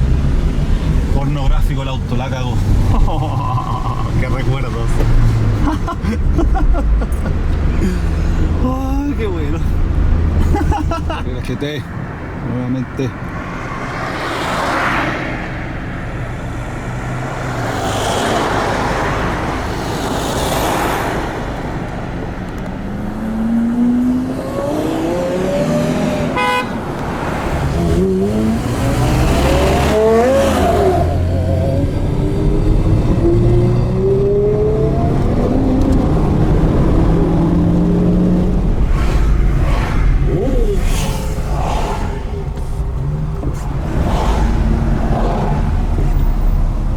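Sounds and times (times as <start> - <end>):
sports car accelerating through gears: 22.1 - 46.9.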